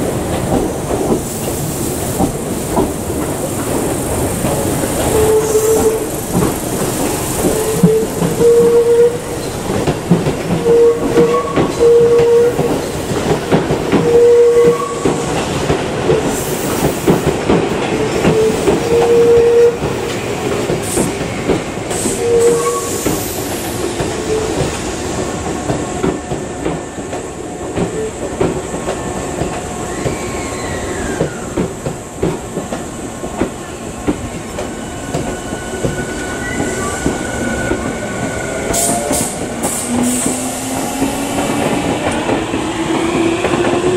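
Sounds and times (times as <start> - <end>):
train wheels clattering over rails: 0.0 - 43.9
electric train tone: 7.4 - 9.6.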